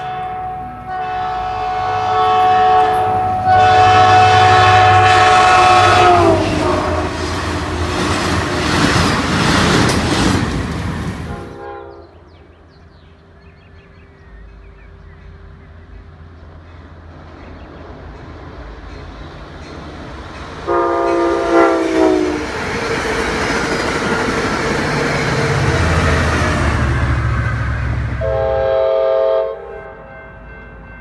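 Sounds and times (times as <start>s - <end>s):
train horn blasts: 0.0s - 8.8s, 11.3s - 12.3s, 20.6s - 22.6s, 27.3s - 30.6s
train cars rushing and clattering: 0.0s - 31.0s.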